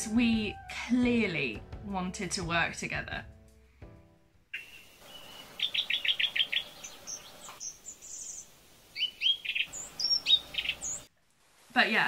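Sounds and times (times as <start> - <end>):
songbird singing: 4.5 - 11.1.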